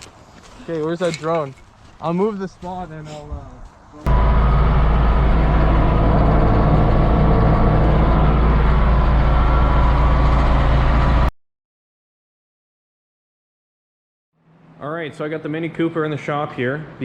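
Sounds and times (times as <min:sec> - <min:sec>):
vehicle engine rumbling: 0:04.0 - 0:11.3.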